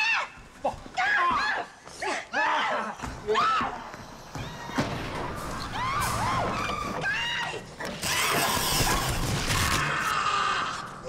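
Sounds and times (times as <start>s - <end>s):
harsh grinding screech: 5.8s - 10.7s.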